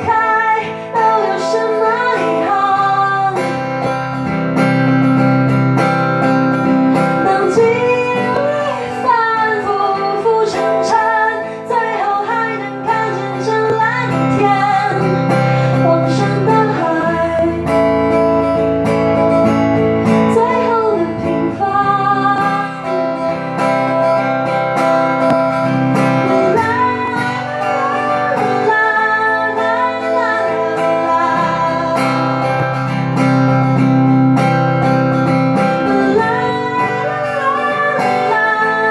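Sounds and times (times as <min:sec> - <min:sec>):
acoustic guitar strumming: 0:00.0 - 0:38.9.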